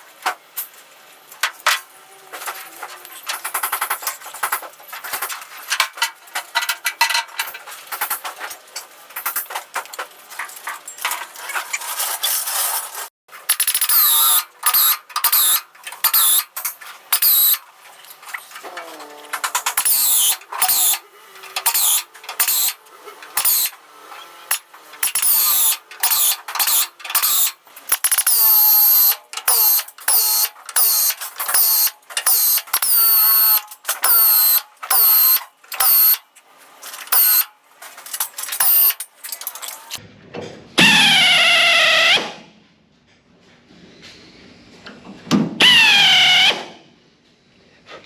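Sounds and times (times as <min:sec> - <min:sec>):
power drill whining into metal: 0:13.4 - 0:40.0, 0:45.6 - 0:46.7.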